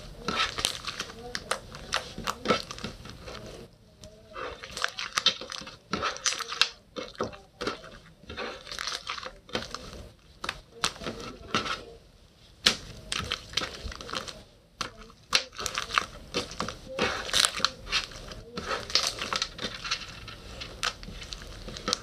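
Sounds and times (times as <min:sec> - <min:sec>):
slime crackling when squished: 0:12.6 - 0:22.0.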